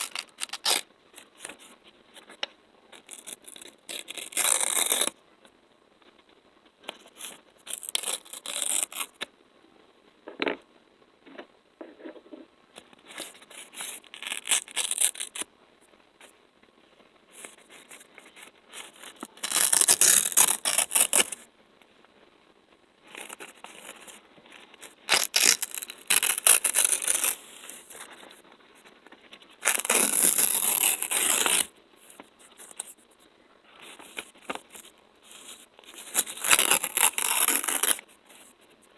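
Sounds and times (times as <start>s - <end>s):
sticky surface peeling: 17.4s - 21.4s, 23.1s - 28.2s, 29.6s - 31.7s, 33.9s - 38.0s.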